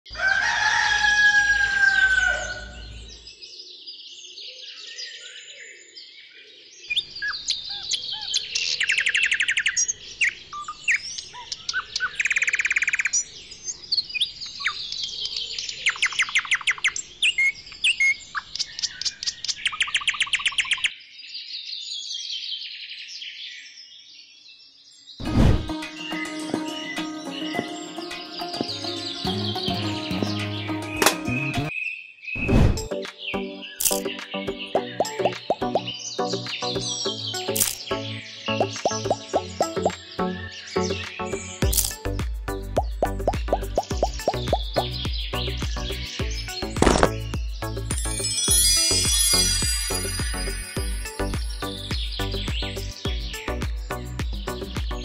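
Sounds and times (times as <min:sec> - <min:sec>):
birds chirping and singing: 0:00.1 - 0:23.8, 0:24.5 - 0:55.0
trilled bird notes: 0:33.7 - 0:36.0, 0:41.6 - 0:45.3, 0:46.1 - 0:53.3.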